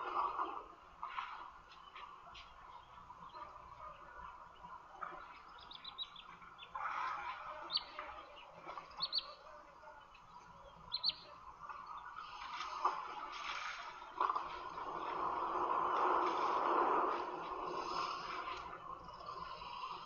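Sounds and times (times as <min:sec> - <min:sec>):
birds chirping: 0:00.1 - 0:20.0
background hiss: 0:05.5 - 0:20.0.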